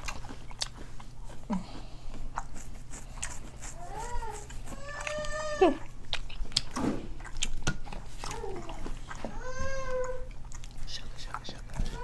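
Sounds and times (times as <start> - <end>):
eating and utensil clicks: 6.0 - 12.0.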